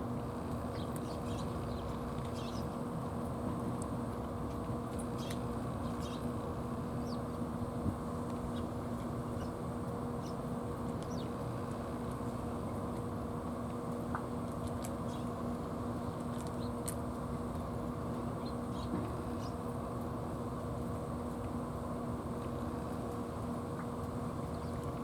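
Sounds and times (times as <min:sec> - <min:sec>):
low rumble with hum: 0:00.0 - 0:25.0
small birds chirping: 0:00.5 - 0:02.8, 0:04.4 - 0:07.4, 0:08.2 - 0:12.9, 0:14.8 - 0:15.5, 0:16.3 - 0:16.9, 0:18.2 - 0:19.7, 0:23.2 - 0:25.0.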